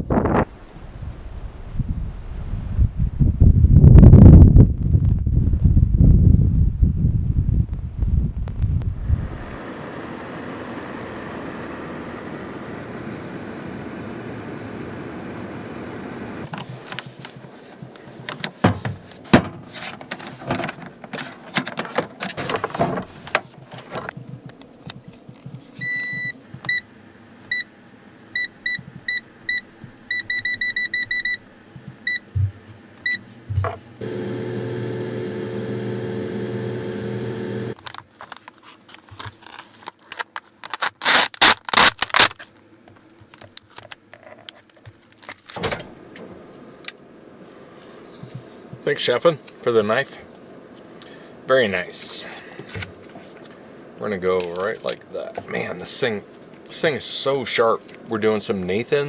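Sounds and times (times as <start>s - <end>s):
kitchen items clattering: 18.3s - 24.1s
motor hum: 33.5s - 37.8s.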